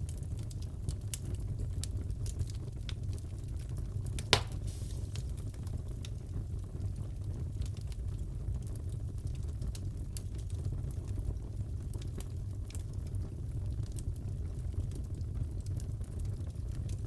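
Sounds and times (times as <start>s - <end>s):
fire crackling: 0.0s - 17.0s
low fire rumble: 0.0s - 17.0s
loud fire pop: 4.2s - 5.6s.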